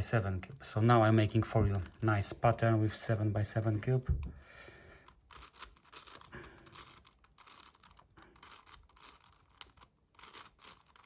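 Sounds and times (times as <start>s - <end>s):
puzzle cube clicking and rattling: 0.9s - 2.6s, 5.0s - 11.0s.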